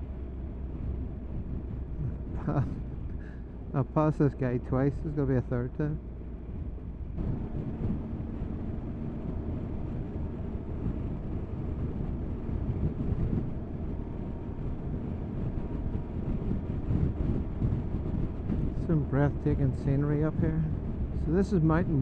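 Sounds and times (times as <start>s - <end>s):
motorcycle engine hum: 0.0s - 22.0s
wind rushing over microphone: 6.0s - 22.0s.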